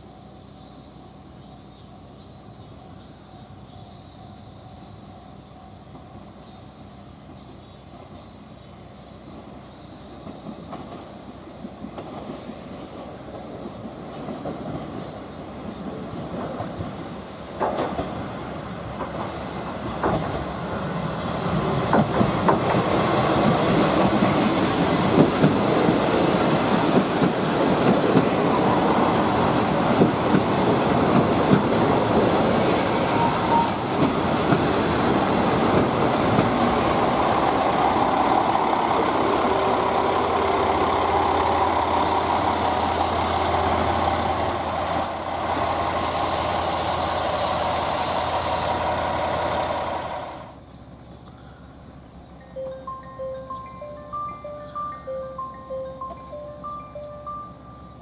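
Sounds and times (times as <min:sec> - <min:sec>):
train wheels rumbling on rail: 0:00.0 - 0:52.5
high wheel squeal: 0:32.8 - 0:34.0, 0:37.1 - 0:49.0.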